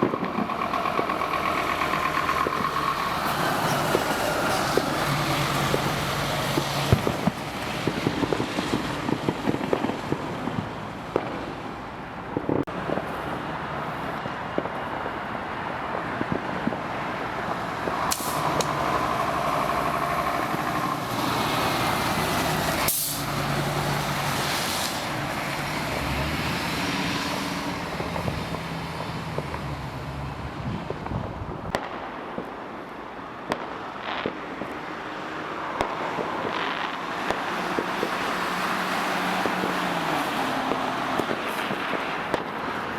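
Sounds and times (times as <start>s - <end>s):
diesel engine running: 0.0s - 8.3s, 17.2s - 26.4s
traffic noise: 0.0s - 42.9s
sharp cracks: 16.0s - 23.8s
air brake hiss: 18.1s - 18.5s, 22.8s - 23.4s.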